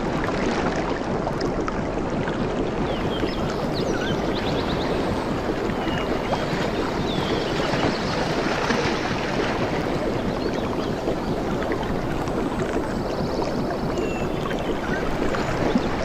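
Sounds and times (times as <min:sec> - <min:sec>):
water sloshing and lapping: 0:00.0 - 0:16.0
small birds chirping: 0:02.9 - 0:08.2, 0:13.1 - 0:16.0.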